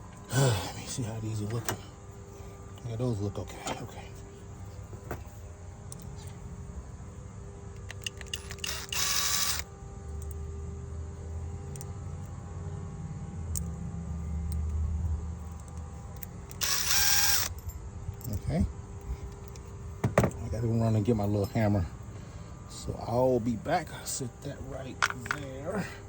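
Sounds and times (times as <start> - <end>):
cordless impact driver running: 8.4 - 9.7, 16.5 - 17.5.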